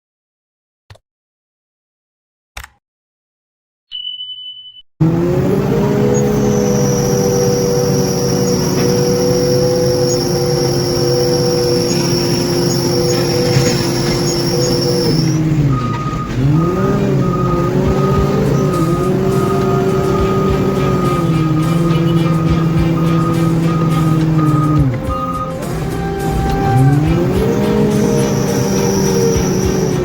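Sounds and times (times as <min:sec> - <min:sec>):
diesel engine under load: 0:05.0 - 0:30.0
thin high whine: 0:05.8 - 0:15.5, 0:17.4 - 0:30.0
repeating beep: 0:06.1 - 0:30.0
short high beep: 0:06.1 - 0:30.0.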